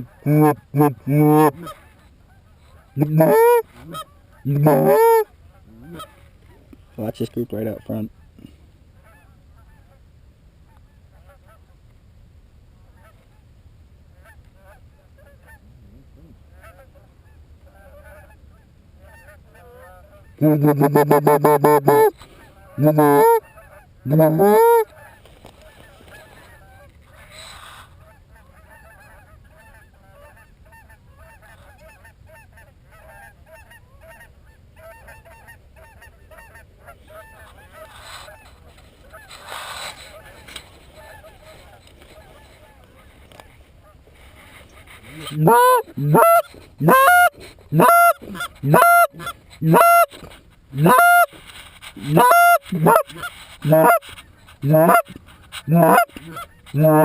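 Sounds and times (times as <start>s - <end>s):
geese honking: 0.0s - 6.3s, 19.0s - 25.2s, 44.7s - 51.4s, 52.0s - 57.0s
goose call device: 0.1s - 1.8s, 3.0s - 5.2s, 20.4s - 22.2s, 22.8s - 23.4s, 24.1s - 24.9s, 45.0s - 57.0s.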